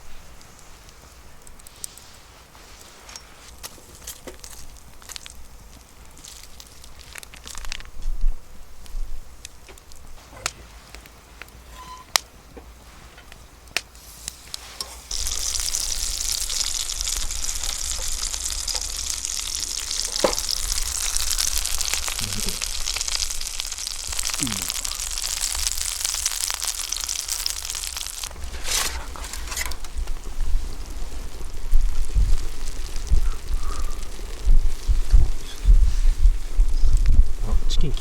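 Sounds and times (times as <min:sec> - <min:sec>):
food sizzling in a skillet: 0:14.0 - 0:38.0.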